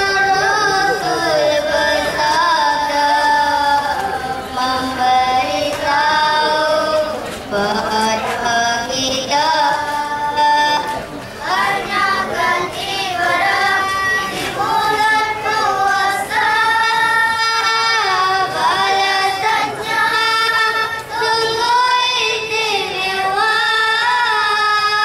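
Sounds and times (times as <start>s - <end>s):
boy singing into a microphone: 0.0s - 25.0s.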